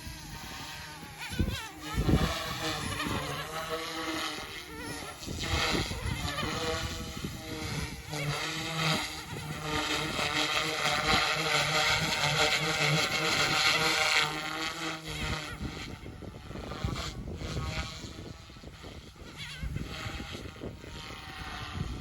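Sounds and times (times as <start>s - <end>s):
rc helicopter rotor whine: 0.0s - 22.0s
wind buffeting microphone: 0.0s - 22.0s.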